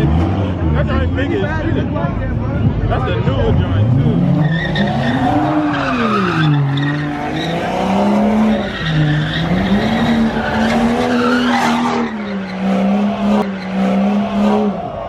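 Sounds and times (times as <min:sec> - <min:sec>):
car engine revving: 0:00.0 - 0:15.0
tyres squealing: 0:04.3 - 0:15.0.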